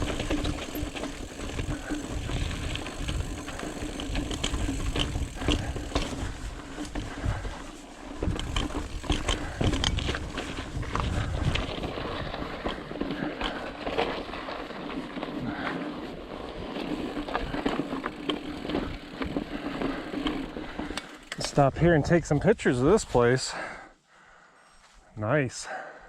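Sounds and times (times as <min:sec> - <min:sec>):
bike clicks and rattles: 0:00.0 - 0:21.8
tyres rumbling on rocky trail: 0:00.0 - 0:23.8
wind on microphone: 0:08.2 - 0:12.6.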